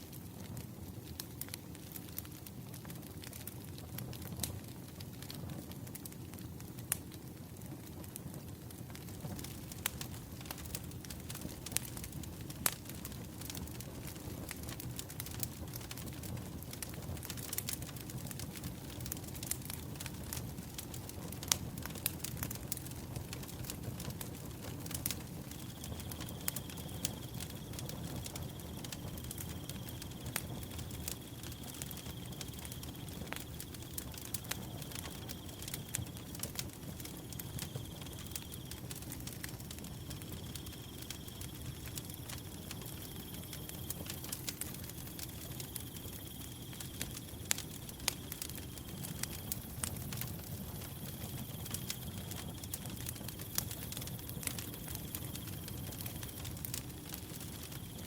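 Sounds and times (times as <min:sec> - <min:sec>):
wood fire crackling: 0:00.0 - 0:58.0
cricket trilling: 0:24.8 - 0:58.0.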